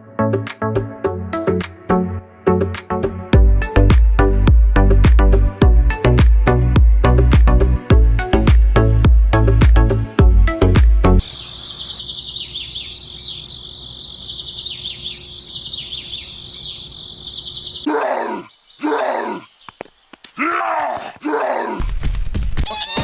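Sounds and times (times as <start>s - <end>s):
birds chirping in trills: 10.5s - 20.4s
large animal groaning calls: 17.8s - 19.5s.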